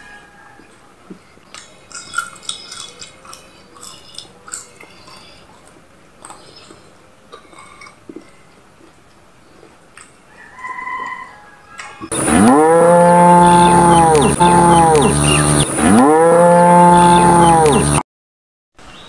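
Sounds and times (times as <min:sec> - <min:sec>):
person chewing with smacking lips: 0:00.6 - 0:10.5.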